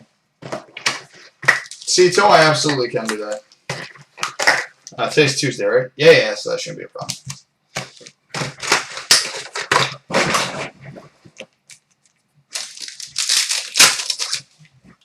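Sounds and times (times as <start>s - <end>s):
plastic wrapper tearing and crinkling: 0.8s - 4.5s, 7.8s - 10.7s, 11.7s - 14.7s.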